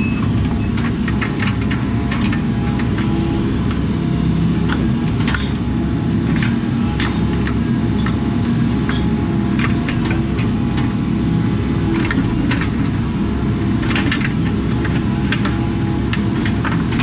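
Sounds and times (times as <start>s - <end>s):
diesel engine under load: 0.0s - 17.0s
metal clanks: 8.9s - 9.2s.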